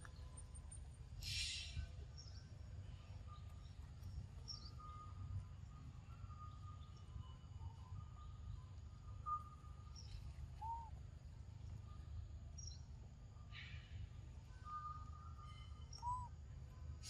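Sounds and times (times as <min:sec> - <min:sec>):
bird calls: 0:00.0 - 0:03.8, 0:09.2 - 0:11.0, 0:13.5 - 0:16.4
thin high whistles: 0:13.5 - 0:16.4.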